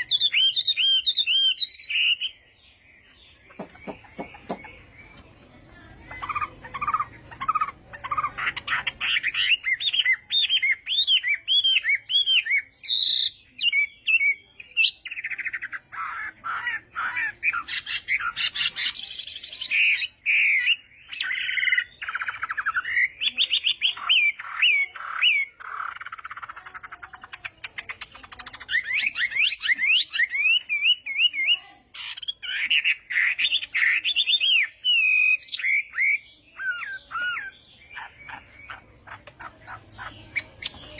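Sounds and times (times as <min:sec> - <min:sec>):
bird singing whistles and trills: 0:00.0 - 0:02.5.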